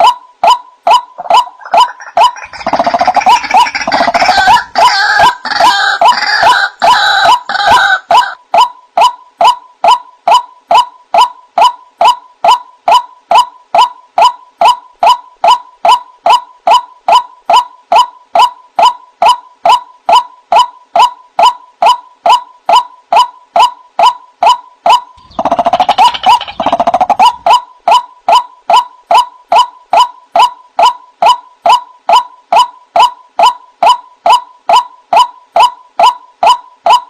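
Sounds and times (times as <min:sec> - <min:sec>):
harsh rapid bird chattering: 0:01.2 - 0:08.3, 0:24.9 - 0:29.2
bird call notes: 0:24.4 - 0:28.1.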